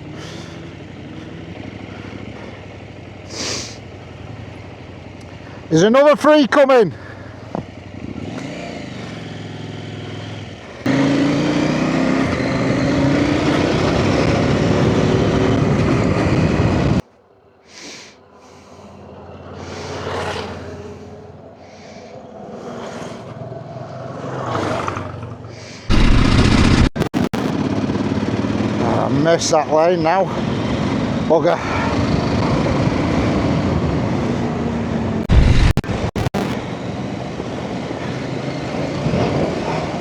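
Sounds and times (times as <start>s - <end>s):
motorcycle engine running: 0.0s - 5.7s, 7.0s - 16.9s, 25.2s - 29.6s.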